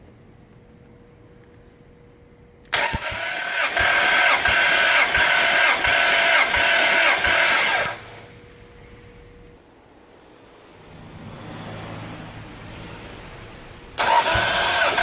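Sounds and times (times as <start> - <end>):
engine cranking on starter motor: 2.7 - 8.3, 13.9 - 15.0.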